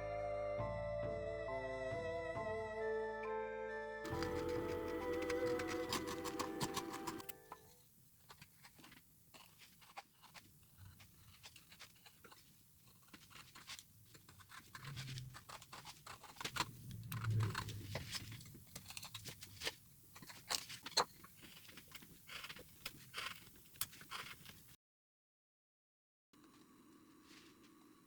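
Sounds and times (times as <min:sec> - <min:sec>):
carving tool cutting wood: 0:04.1 - 0:24.7.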